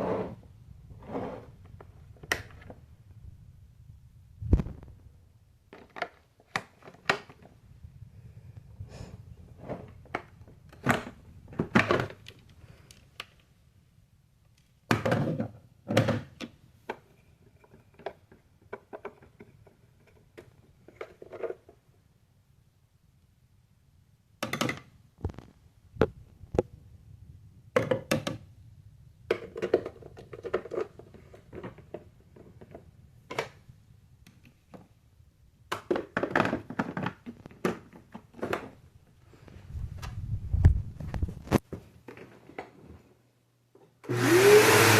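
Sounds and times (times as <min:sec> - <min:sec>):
hard objects knocking and clicking: 0:14.9 - 0:21.8, 0:27.7 - 0:28.5, 0:29.3 - 0:33.6, 0:35.7 - 0:38.8.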